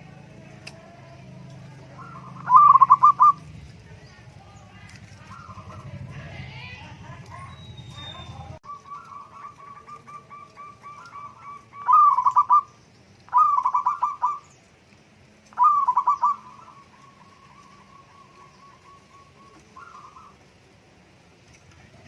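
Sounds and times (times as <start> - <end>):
doves cooing: 0.0 - 22.0
rapid trilled coos: 1.6 - 3.6, 5.0 - 14.6, 15.6 - 20.8.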